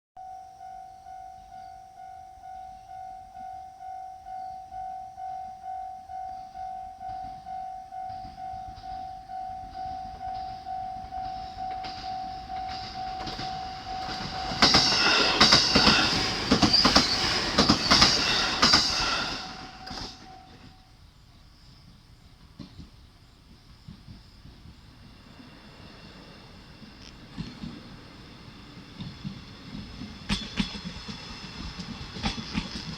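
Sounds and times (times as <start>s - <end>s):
level crossing bell ringing: 0.2s - 15.2s
train passing with wheel clatter: 2.4s - 32.9s.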